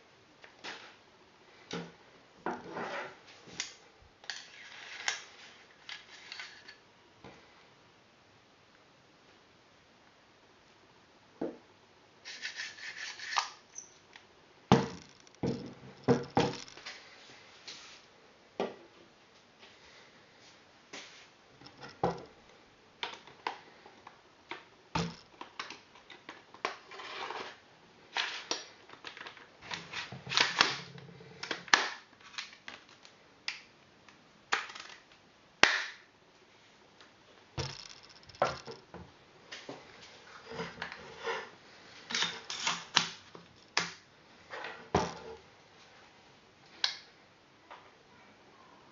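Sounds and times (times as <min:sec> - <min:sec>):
scraping and rubbing: 0:12.3 - 0:13.6
sharp clicks and knocks: 0:14.7 - 0:16.9, 0:37.6 - 0:39.0.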